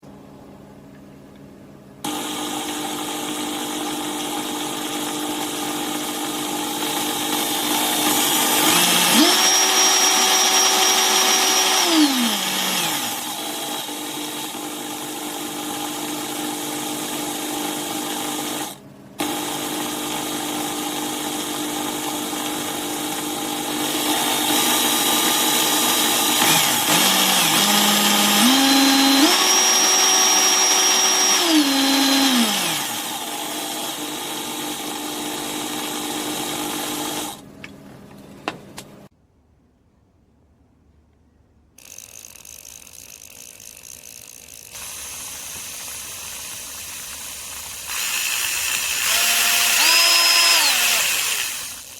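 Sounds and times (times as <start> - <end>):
drill motor whining: 2.1 - 16.6, 23.8 - 37.4, 41.8 - 51.9.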